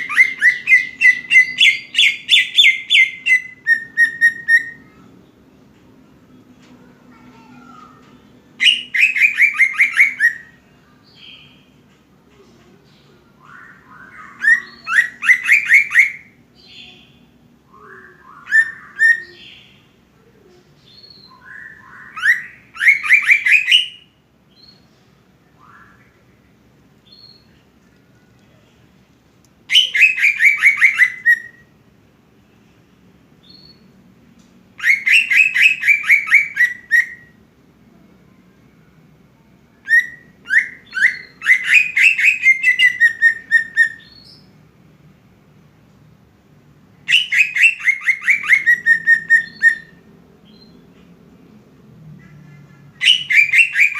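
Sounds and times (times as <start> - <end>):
bird ringing song: 0.0 - 5.0, 8.6 - 11.7, 13.4 - 19.9, 20.8 - 24.8, 29.7 - 31.7, 34.8 - 37.4, 39.8 - 44.6, 47.1 - 50.8, 52.9 - 53.9.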